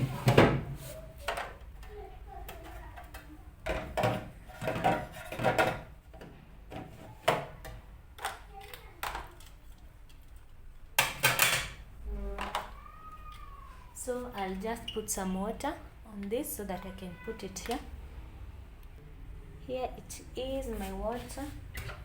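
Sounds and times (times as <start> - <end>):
fridge shelves knocking and clattering: 0.0 - 0.8.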